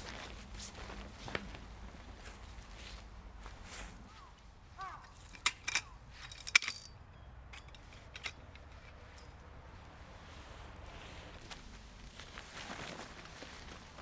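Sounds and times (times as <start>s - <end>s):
metallic clinks of gear handled: 4.8s - 9.4s.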